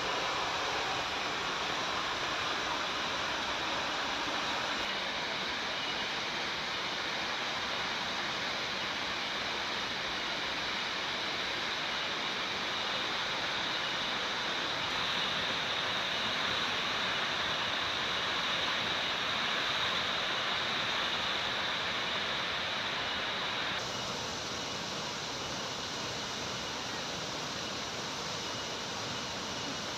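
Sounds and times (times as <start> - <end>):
waterfall rushing and splashing: 0.0 - 29.9.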